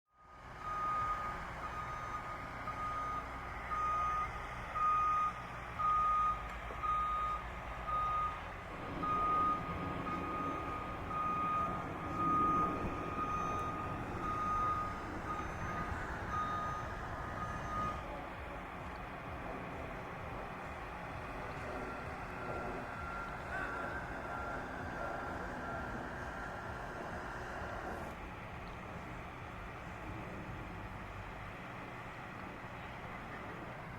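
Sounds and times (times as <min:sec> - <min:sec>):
vehicle engine rumbling: 0:00.1 - 0:33.9
reversing alarm beeping: 0:00.2 - 0:18.0, 0:21.2 - 0:27.2.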